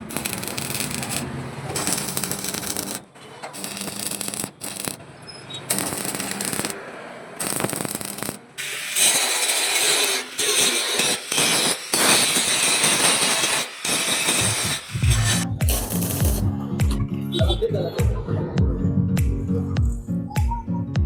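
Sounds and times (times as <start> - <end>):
grinding on steel: 0.0 - 6.8, 7.4 - 16.4.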